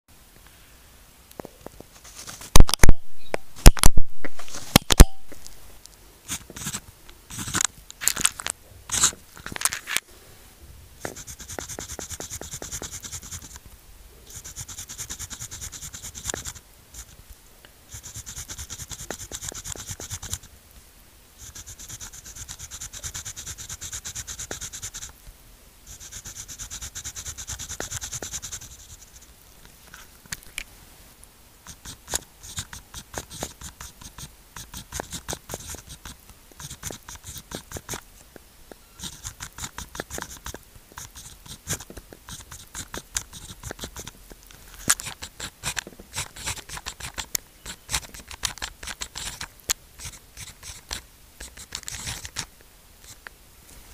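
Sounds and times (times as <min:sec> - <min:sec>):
pen scratching on paper: 0:06.3 - 0:07.7, 0:08.9 - 0:09.2, 0:11.0 - 0:13.6, 0:14.3 - 0:17.2, 0:17.9 - 0:20.5, 0:21.4 - 0:25.1, 0:25.9 - 0:29.3, 0:31.7 - 0:38.0, 0:39.0 - 0:44.2, 0:44.8 - 0:53.2
sharp clicks and knocks: 0:32.1 - 0:52.5.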